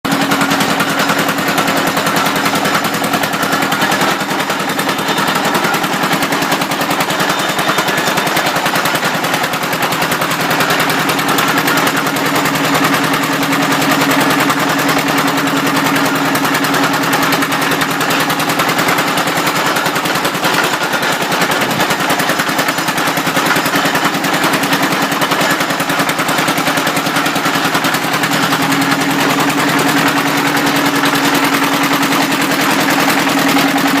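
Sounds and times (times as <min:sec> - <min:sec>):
drilling machine rattling: 0:00.0 - 0:34.0.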